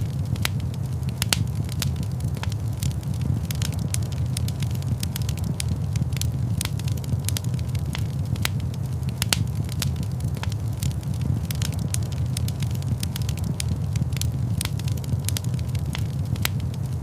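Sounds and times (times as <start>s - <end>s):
fire crackling and popping: 0.0s - 17.0s
low rumble of flames: 0.0s - 17.0s.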